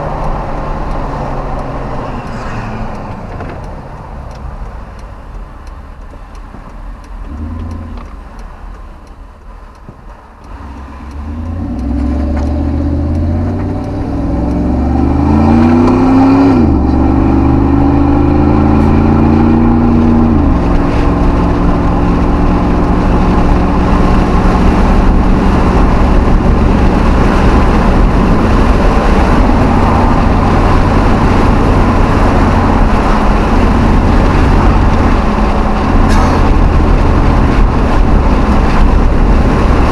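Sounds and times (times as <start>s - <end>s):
pickup truck engine accelerating: 10.4s - 39.9s.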